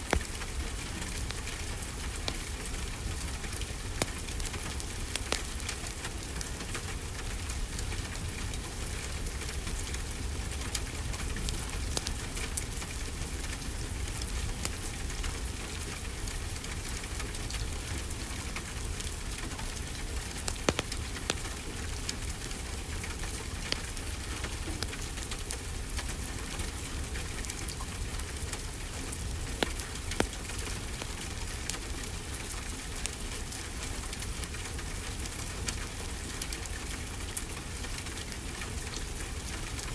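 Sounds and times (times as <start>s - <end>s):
sharp pops of fire: 0.0s - 6.2s, 19.2s - 26.0s, 29.2s - 31.9s
fire crackling: 0.0s - 39.9s
steady rainfall: 0.0s - 39.9s.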